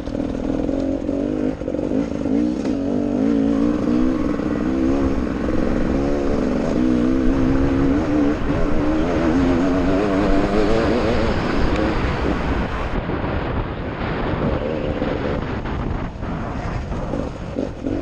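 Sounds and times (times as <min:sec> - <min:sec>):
dirt bike engine revving: 0:00.1 - 0:13.0.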